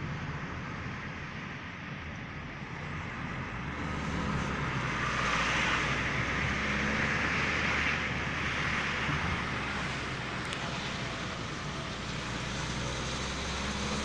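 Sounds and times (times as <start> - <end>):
vehicle passing: 3.1 - 14.0.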